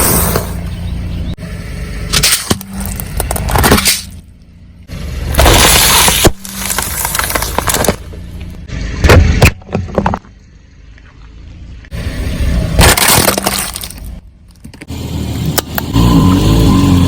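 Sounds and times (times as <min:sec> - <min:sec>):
low hum of car: 0:00.0 - 0:17.0
tyres crushing crunchy objects: 0:02.1 - 0:04.2, 0:05.2 - 0:08.4, 0:12.7 - 0:14.9.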